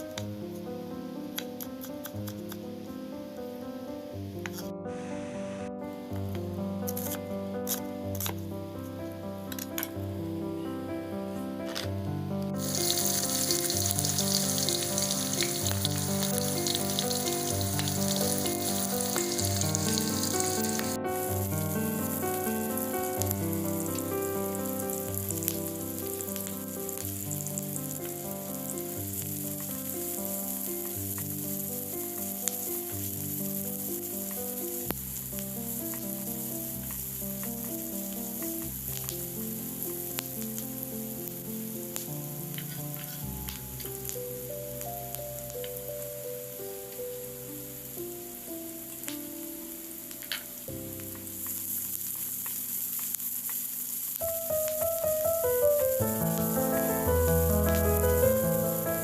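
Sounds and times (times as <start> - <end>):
background music: 0.0 - 32.9, 54.3 - 59.0
food sizzling in hot oil: 12.5 - 59.0.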